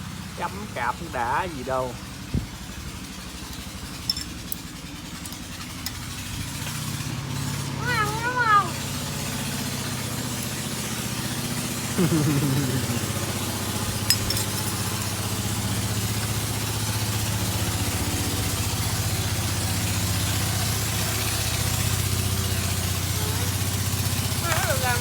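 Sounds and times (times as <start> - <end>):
engine idling: 0.0 - 25.0
short falling cry: 12.0 - 13.4.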